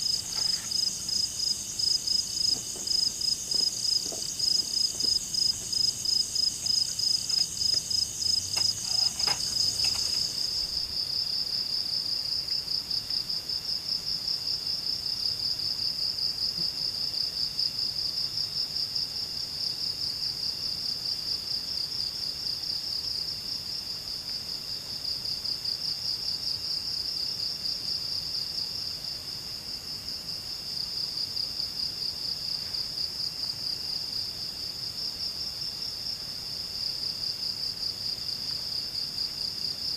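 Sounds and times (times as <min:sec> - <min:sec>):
higher-pitched insect: 0:00.0 - 0:11.3
insect chorus trilling: 0:00.0 - 0:11.5
faint knock: 0:02.4 - 0:05.8.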